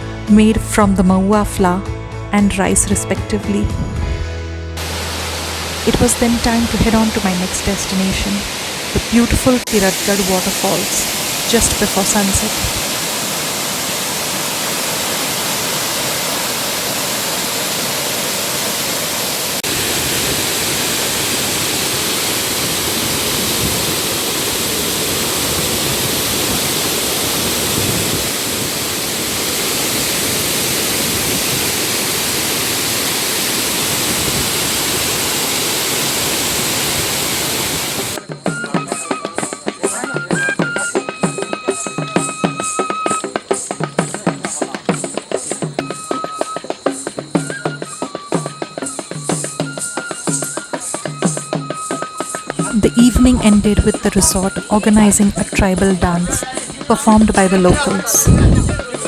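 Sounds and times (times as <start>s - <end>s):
rhythmic drum music: 2.4s - 13.3s, 38.1s - 59.0s
waterfall roaring: 4.8s - 38.3s, 48.0s - 59.0s.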